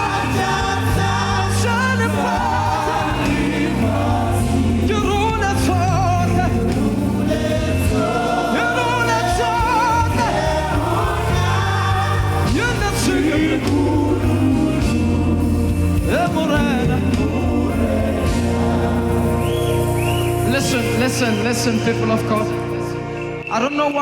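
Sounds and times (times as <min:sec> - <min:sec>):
bass notes: 0:00.0 - 0:23.4
choir singing gospel song: 0:00.0 - 0:23.4
band playing: 0:00.0 - 0:24.0.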